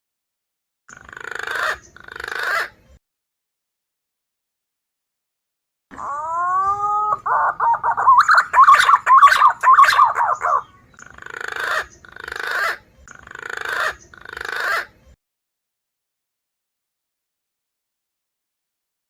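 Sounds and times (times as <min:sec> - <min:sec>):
pigeon whistling song: 0:06.0 - 0:14.9.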